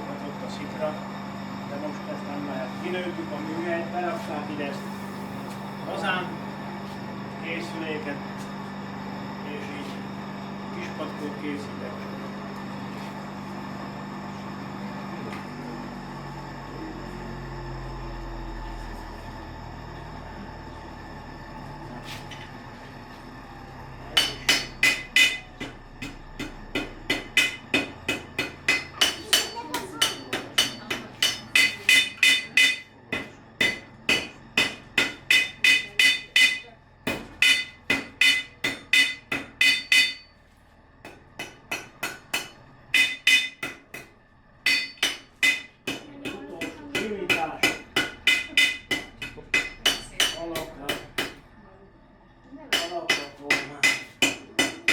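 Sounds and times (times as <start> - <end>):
hammer striking metal on anvil: 24.1 - 40.4, 41.0 - 51.4, 52.7 - 54.9.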